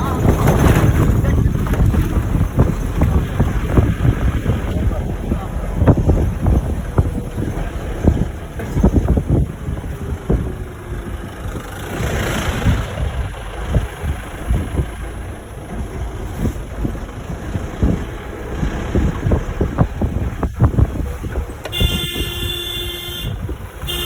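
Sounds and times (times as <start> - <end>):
low uneven rumble: 0.0 - 24.0
wind buffeting microphone: 0.0 - 24.0.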